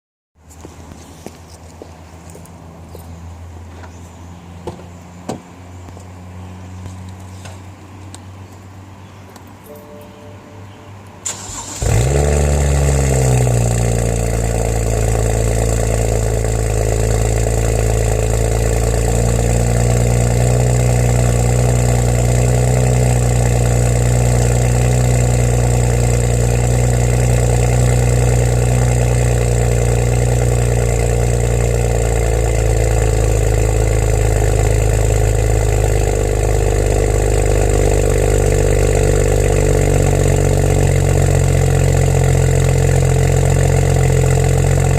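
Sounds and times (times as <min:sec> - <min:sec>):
car engine starting and idling: 0:09.5 - 0:44.9.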